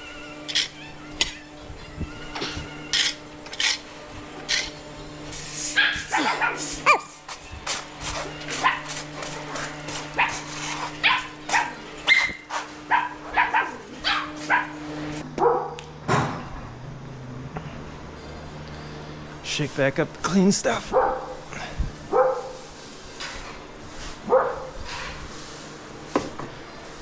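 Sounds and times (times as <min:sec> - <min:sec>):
dog barking: 0:05.8 - 0:07.1, 0:08.5 - 0:09.0, 0:10.2 - 0:14.8, 0:15.4 - 0:15.8, 0:20.9 - 0:21.4, 0:22.1 - 0:22.6, 0:24.3 - 0:24.8.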